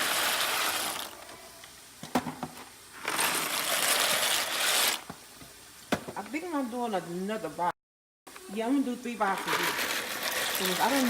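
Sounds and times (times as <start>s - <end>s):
dry pasta rattling into pot: 3.0s - 5.0s, 9.3s - 11.0s.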